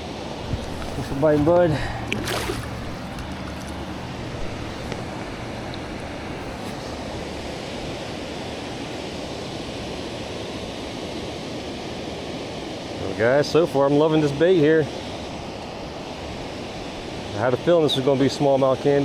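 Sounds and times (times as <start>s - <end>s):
river current flowing over rocks: 0.0s - 19.0s
fish splashing into water: 0.6s - 5.1s.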